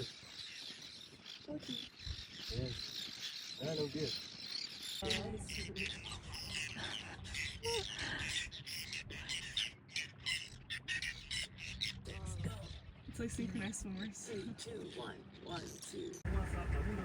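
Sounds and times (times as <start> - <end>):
birds chirping and squawking: 0.0 - 17.0
steady low rumble: 11.6 - 14.2, 16.2 - 17.0.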